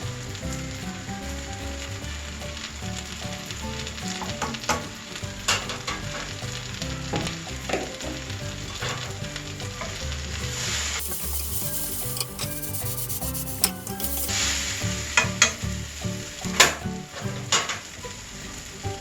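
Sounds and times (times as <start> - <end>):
noodles sizzling in a pan: 11.0 - 14.5.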